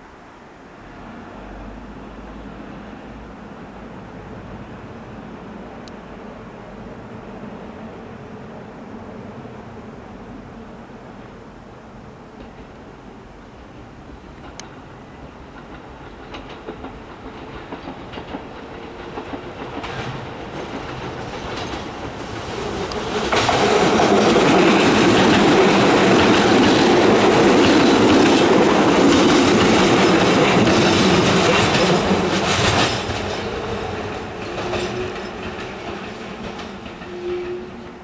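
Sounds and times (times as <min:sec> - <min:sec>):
electric train passing: 0:00.0 - 0:38.0
wheels clattering over rail joints: 0:13.8 - 0:38.0.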